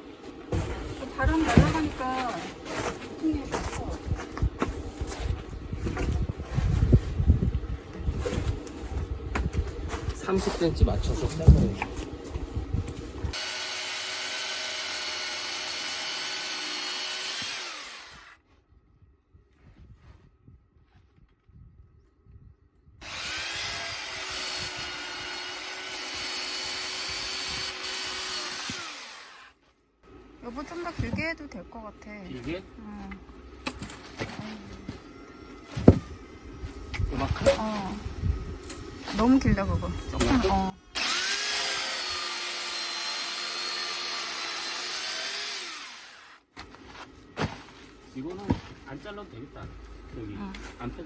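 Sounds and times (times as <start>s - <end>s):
electric saw cutting logs: 13.3s - 18.4s, 23.0s - 29.6s, 40.2s - 46.5s.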